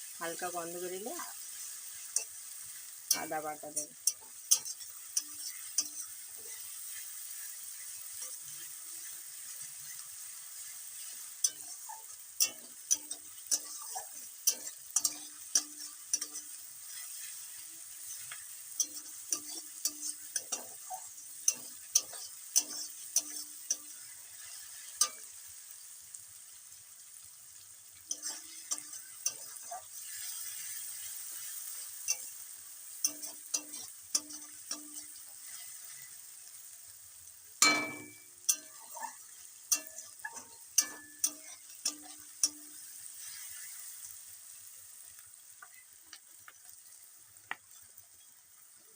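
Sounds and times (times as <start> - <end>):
onions sizzling in oil: 0.0 - 48.9
metal spatula scraping a pan: 1.1 - 25.6, 28.0 - 36.6, 37.6 - 44.2, 47.7 - 48.4
metal knock with short ring: 37.6 - 38.2.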